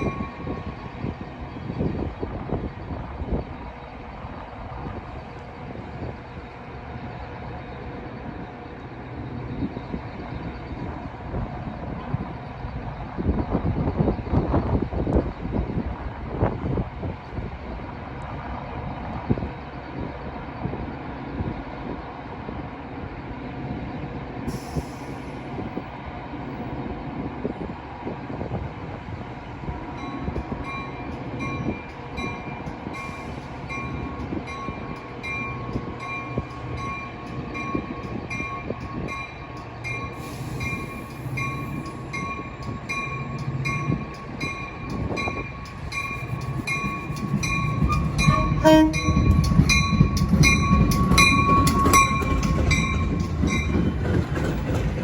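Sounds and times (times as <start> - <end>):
train rumbling on tracks: 0.0 - 55.0.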